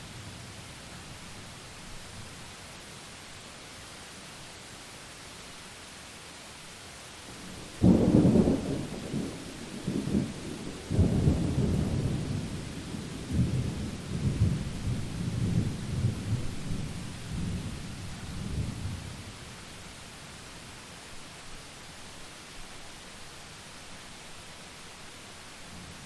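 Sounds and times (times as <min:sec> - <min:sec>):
steady rain: 0:00.0 - 0:26.0
thunder rumbling: 0:07.5 - 0:17.8.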